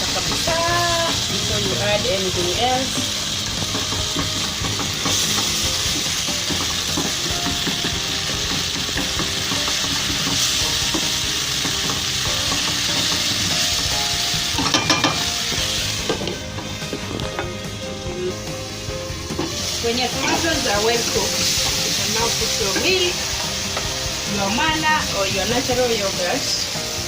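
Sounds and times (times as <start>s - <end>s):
curry sizzling in a pot: 0.0s - 27.0s
utensil clattering against pot: 14.6s - 15.3s.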